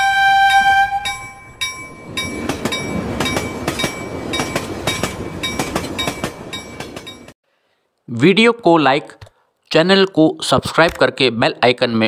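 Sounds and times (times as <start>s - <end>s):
passenger train rumbling: 0.0s - 7.4s
bell-like chime: 1.0s - 7.3s
train wheels clacking over rail joints: 1.6s - 7.4s.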